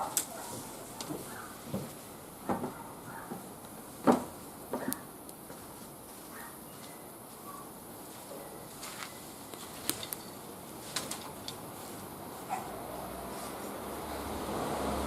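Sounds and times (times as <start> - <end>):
wood fire crackling: 0.0 - 6.2, 8.7 - 12.3.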